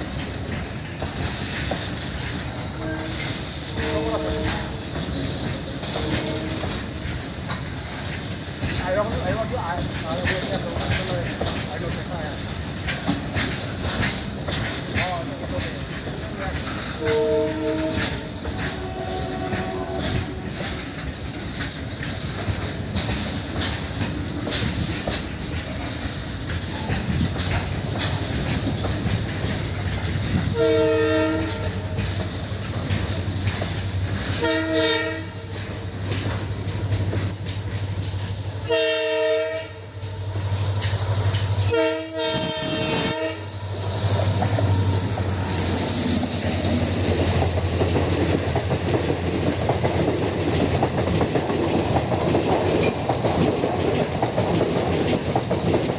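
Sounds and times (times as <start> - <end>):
diesel locomotive engine drone: 0.0 - 55.9
wheels rattling on track: 0.0 - 55.9
train horn blasts: 2.8 - 4.9, 5.9 - 6.9, 17.0 - 20.5, 30.5 - 32.0, 34.4 - 35.6, 38.6 - 40.2, 41.6 - 43.6.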